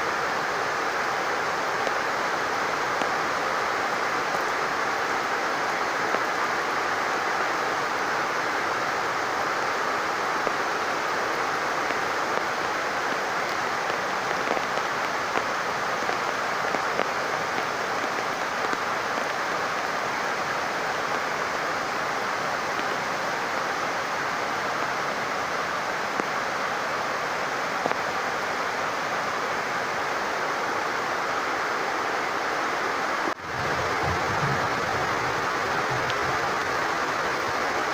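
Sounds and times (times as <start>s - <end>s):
rain falling steadily: 0.0s - 37.9s
runoff water overflowing: 0.0s - 37.9s
rain drop ticks: 1.8s - 2.0s, 2.9s - 3.2s, 6.0s - 6.4s, 11.8s - 20.0s, 27.8s - 28.2s, 33.3s - 37.9s.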